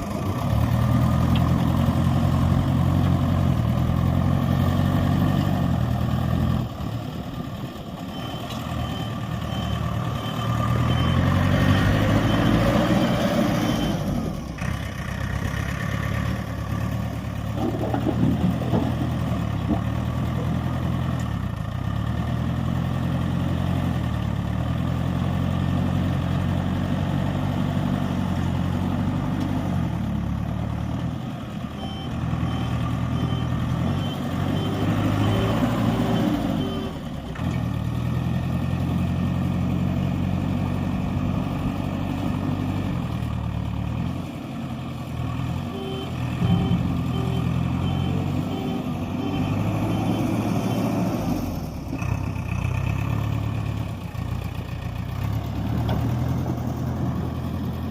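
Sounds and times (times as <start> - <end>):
heavy machinery diesel engine: 0.0 - 57.9
reversing alarm beeping: 8.0 - 14.3, 31.8 - 37.0, 45.8 - 51.2.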